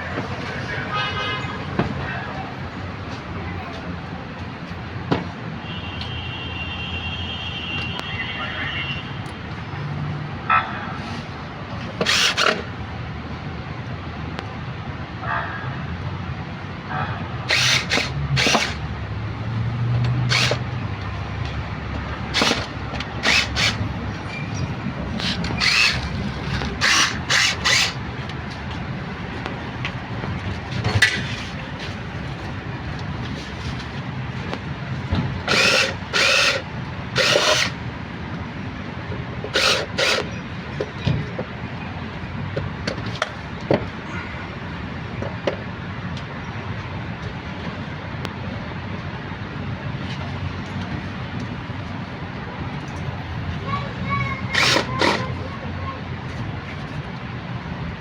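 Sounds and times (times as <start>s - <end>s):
traffic noise: 0.0s - 58.0s
power tool bursts: 12.0s - 12.6s, 17.5s - 18.8s, 20.3s - 20.6s, 22.3s - 23.8s, 25.2s - 28.0s, 35.4s - 37.8s, 39.5s - 40.3s, 54.5s - 55.3s.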